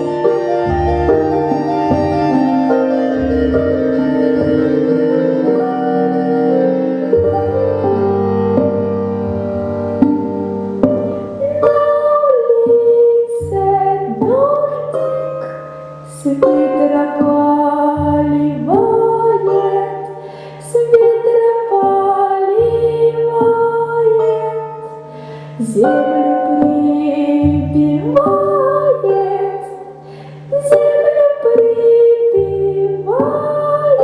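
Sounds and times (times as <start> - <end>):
woman singing folk song: 11.3 - 34.0.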